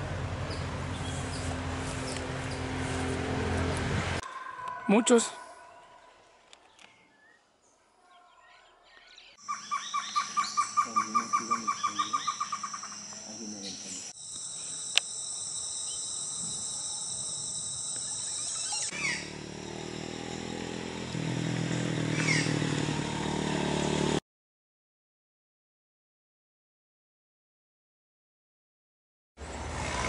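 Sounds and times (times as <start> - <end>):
rapid repeated bird call notes: 9.2 - 15.0
high-pitched drone: 9.4 - 19.4.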